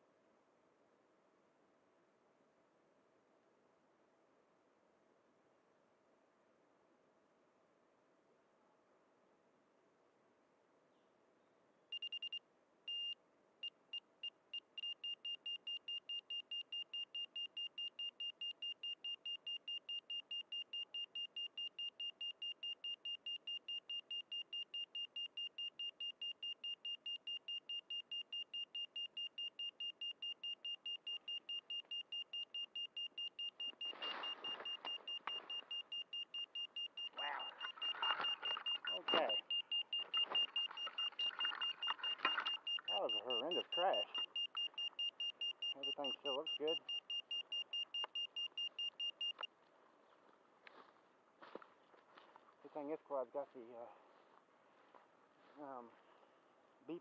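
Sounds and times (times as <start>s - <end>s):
high-pitched buzzer beeping: 14.0s - 49.5s
rustling: 33.2s - 42.9s.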